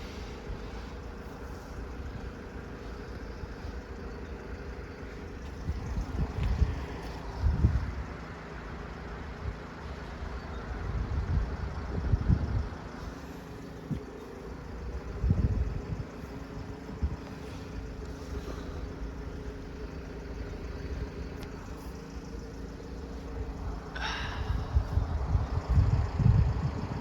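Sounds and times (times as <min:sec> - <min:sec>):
vehicle engine idling: 0:00.0 - 0:27.0
wind buffeting microphone: 0:05.3 - 0:08.1, 0:10.9 - 0:12.9, 0:14.7 - 0:18.5, 0:23.4 - 0:27.0.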